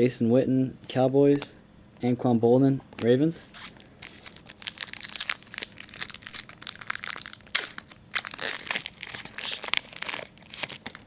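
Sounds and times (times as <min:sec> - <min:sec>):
foil wrapper crinkling: 0:03.5 - 0:11.0.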